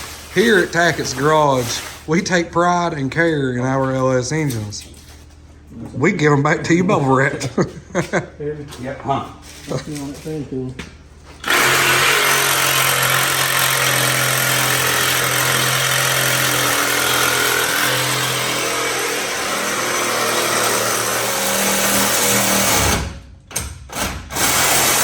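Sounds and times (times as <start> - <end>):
power saw cutting steel: 11.4 - 23.1, 24.4 - 25.0.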